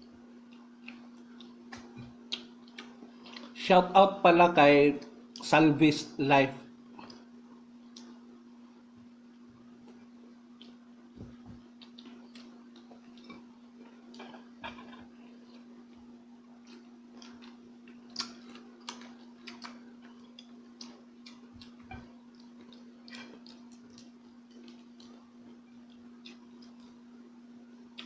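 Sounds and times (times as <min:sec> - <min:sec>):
steady low hum: 0:00.0 - 0:28.0
person chewing crunchy food: 0:00.4 - 0:03.6, 0:09.8 - 0:27.1.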